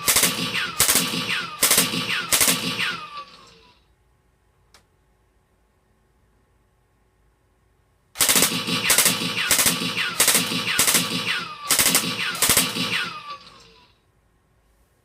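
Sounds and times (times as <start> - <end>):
simulated rifle gunshots: 0.0 - 3.5, 8.2 - 13.8.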